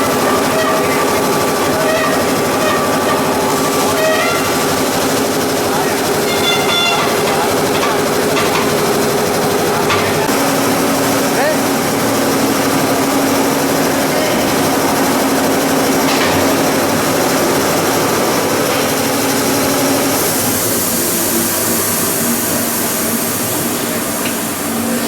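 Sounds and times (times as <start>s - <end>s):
machinery running with hum: 0.0s - 25.0s.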